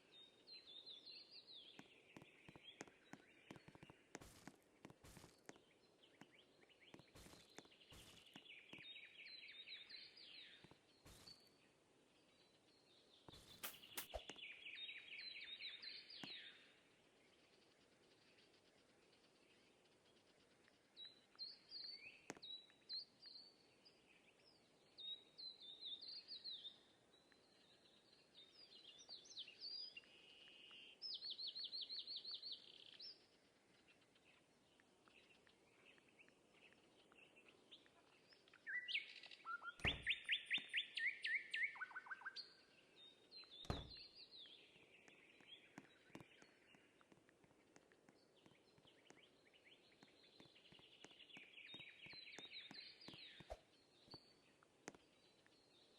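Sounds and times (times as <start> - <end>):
songbirds chirping and singing: 0.0 - 55.9
bird trills: 38.6 - 42.5
dull thumps: 39.8 - 40.2, 43.6 - 44.0.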